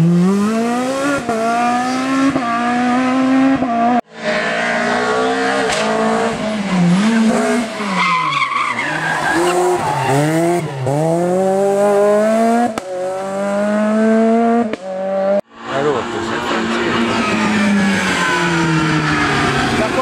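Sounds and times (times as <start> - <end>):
rally car engine revving: 0.0 - 20.0
tyre squeal: 7.1 - 10.8.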